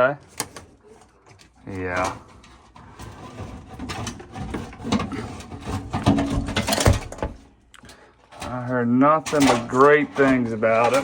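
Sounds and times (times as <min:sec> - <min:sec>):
metallic clicking and clattering: 0:03.3 - 0:11.0.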